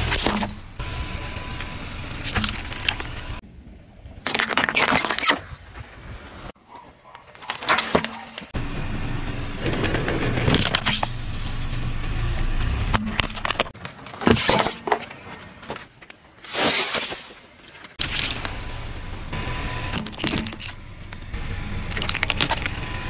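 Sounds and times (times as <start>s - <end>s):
moving car noise: 0.0s - 3.4s, 8.4s - 13.8s, 18.0s - 23.0s
objects snapping under tyres: 2.1s - 3.4s, 12.9s - 23.0s.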